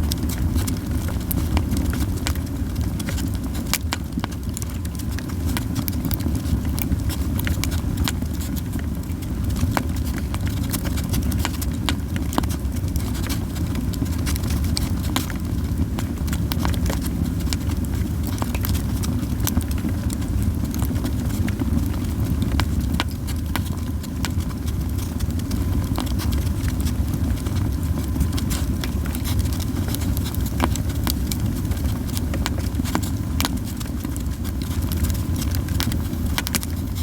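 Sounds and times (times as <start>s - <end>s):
campfire crackling and popping: 0.0s - 37.0s
fire low rumble: 0.0s - 37.0s.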